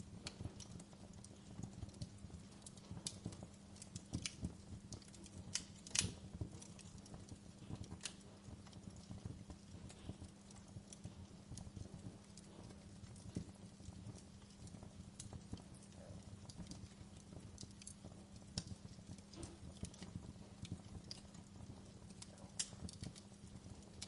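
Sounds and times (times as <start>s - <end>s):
faint steady hiss: 0.0s - 24.0s
wood fire crackling and popping: 0.0s - 24.0s.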